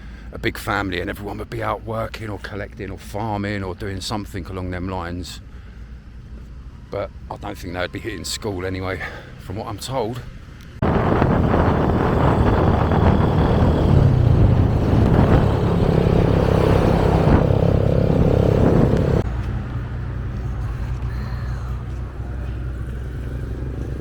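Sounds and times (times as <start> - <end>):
road and wind noise: 0.0 - 24.0
motorcycle engine running: 10.8 - 24.0.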